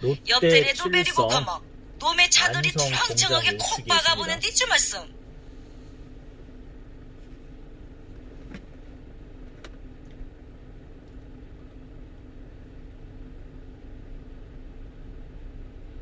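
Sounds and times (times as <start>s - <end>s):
truck engine drone: 0.0s - 7.0s
road rumble: 0.0s - 11.9s.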